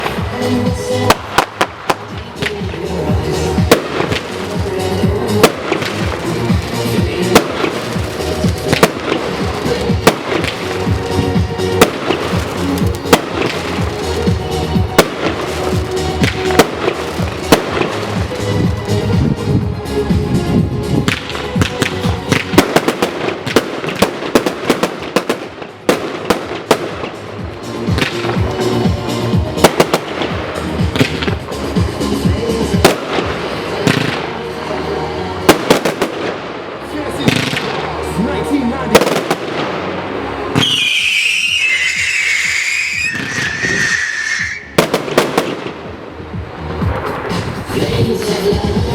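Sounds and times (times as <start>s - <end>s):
hissing crackle: 0.0s - 19.5s
firework bangs and crackles: 0.0s - 48.9s
music: 0.0s - 48.9s
firework whistle falling in pitch: 40.6s - 44.8s.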